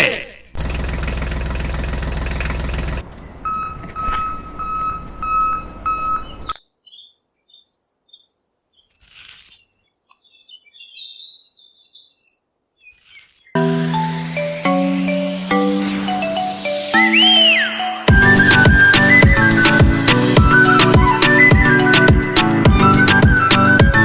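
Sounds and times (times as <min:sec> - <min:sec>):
rough mechanical clatter: 0:00.6 - 0:03.0
small birds chirping: 0:01.9 - 0:14.2
electronic beeps: 0:03.4 - 0:06.6.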